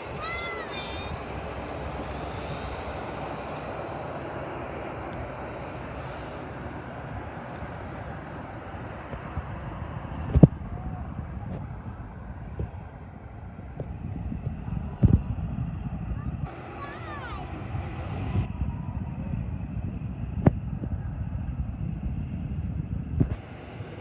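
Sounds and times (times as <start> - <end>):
airliner engine roar: 0.0 - 24.0
sharp low thump: 13.7 - 16.3, 19.9 - 21.6.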